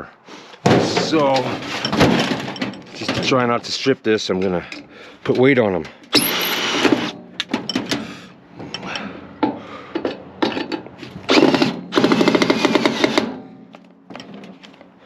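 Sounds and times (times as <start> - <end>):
cordless drill running: 6.2 - 7.1, 11.3 - 13.3.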